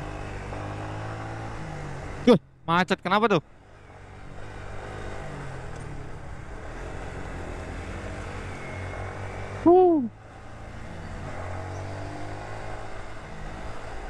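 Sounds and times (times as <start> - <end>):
motorcycle engine running: 0.0 - 2.6
wind and road noise: 0.0 - 14.0.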